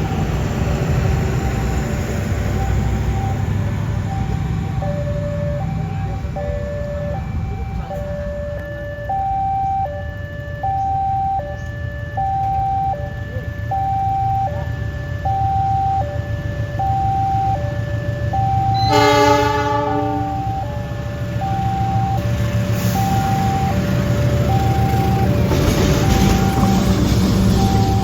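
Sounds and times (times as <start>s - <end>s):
two-tone crossing alarm: 0.0s - 28.0s
train horn: 18.7s - 21.0s.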